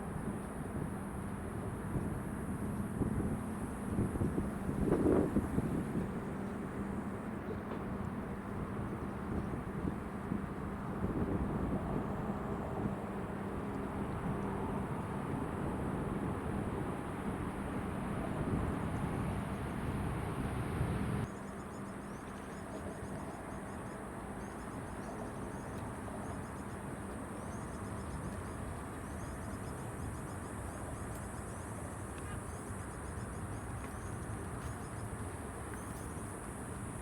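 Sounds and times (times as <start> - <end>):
jet airliner engines rumbling: 0.0 - 21.3.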